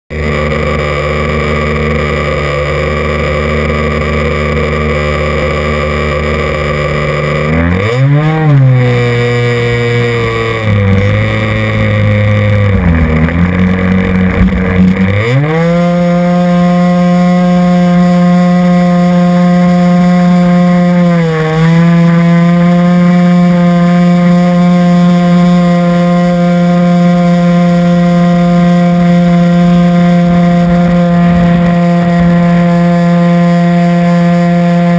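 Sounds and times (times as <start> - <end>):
model airplane motor running: 0.1 - 34.9.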